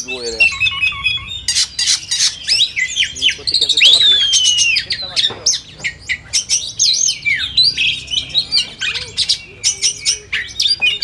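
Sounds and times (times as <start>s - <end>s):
bird singing whistles and trills: 0.0s - 11.0s.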